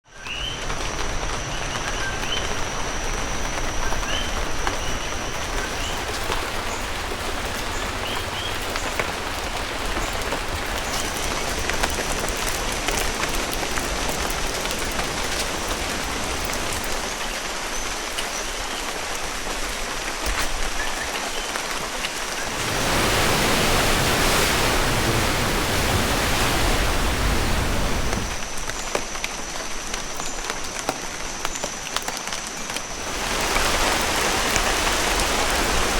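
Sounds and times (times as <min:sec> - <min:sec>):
rain on foliage: 0:00.2 - 0:35.9
rush of water: 0:03.0 - 0:28.6, 0:32.7 - 0:35.9.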